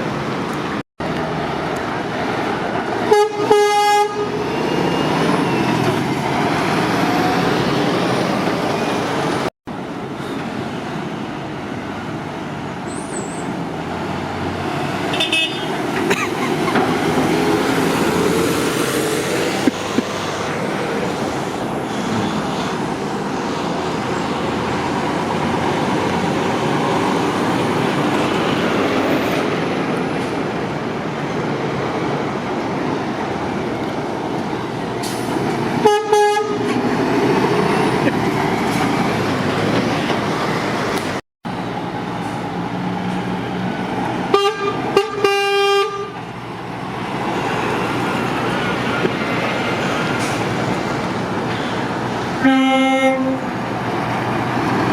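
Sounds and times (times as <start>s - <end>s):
heavy lorries passing: 0.0s - 54.9s
motorway traffic roar: 0.0s - 54.9s
lorry horn blasts: 3.1s - 4.4s, 35.8s - 36.7s, 52.4s - 53.5s.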